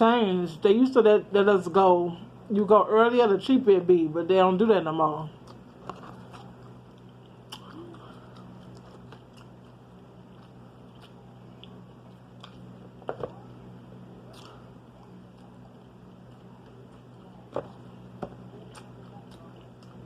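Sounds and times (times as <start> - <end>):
low room hum: 0.0 - 20.0
person chewing food: 5.4 - 13.5, 14.2 - 20.0.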